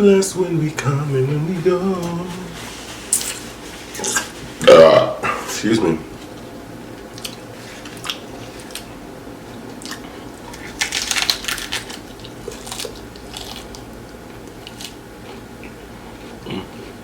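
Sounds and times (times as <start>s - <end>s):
crunchy taco being chewed: 7.0s - 17.0s.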